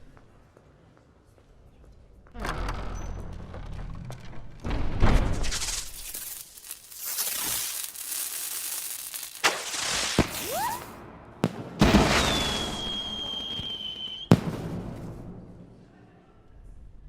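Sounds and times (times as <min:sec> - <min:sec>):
crackling hiss: 0:05.4 - 0:11.0
fireworks bangs: 0:05.4 - 0:15.9
firework whistles: 0:05.6 - 0:11.0, 0:11.8 - 0:14.4.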